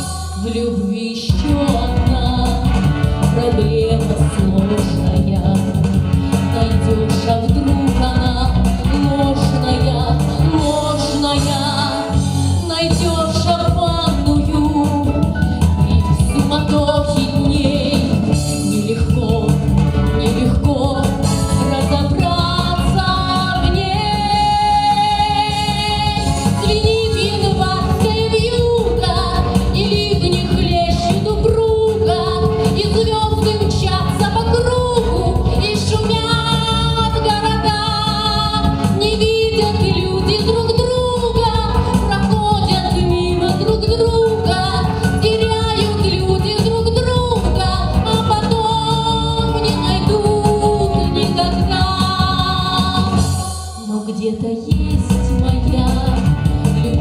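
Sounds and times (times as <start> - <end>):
instrumental accompaniment: 0.0 - 57.0
woman singing: 0.0 - 57.0.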